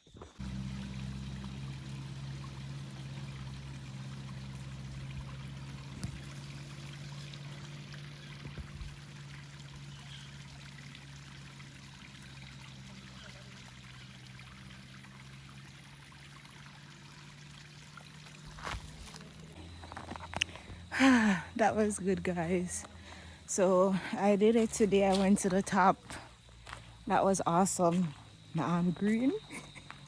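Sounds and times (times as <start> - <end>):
running water rushing: 0.4 - 19.6
low steady hum: 0.4 - 30.0.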